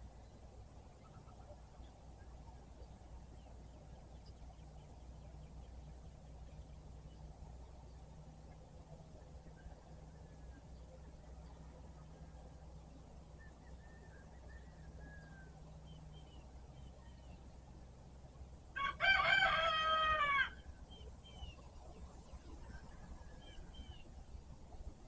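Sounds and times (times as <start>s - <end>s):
small birds chirping: 0.0s - 8.2s
rooster crowing: 18.8s - 20.6s.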